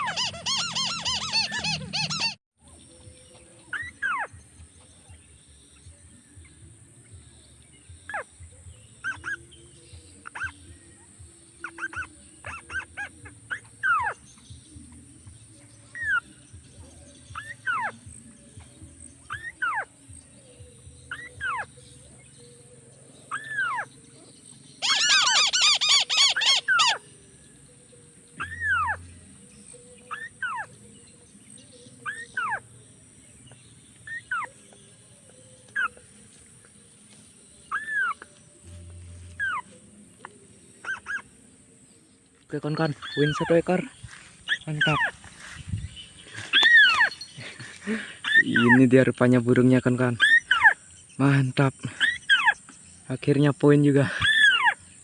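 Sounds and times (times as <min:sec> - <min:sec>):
crake calls: 0:00.0 - 0:02.4, 0:24.8 - 0:27.0, 0:42.4 - 0:55.0
loud rapid bird trill: 0:00.0 - 0:02.4, 0:21.1 - 0:21.8, 0:24.8 - 0:27.0, 0:28.4 - 0:30.8, 0:40.8 - 0:41.4, 0:42.5 - 0:55.0.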